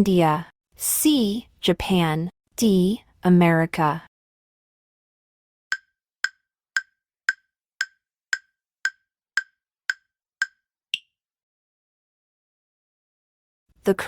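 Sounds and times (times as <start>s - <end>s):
timer ticking: 5.7s - 11.1s.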